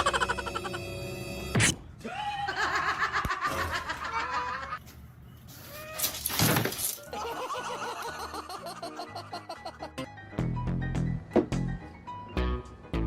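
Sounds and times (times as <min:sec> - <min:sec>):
person laughing in high-pitched bursts: 0:00.0 - 0:00.9, 0:02.3 - 0:04.8.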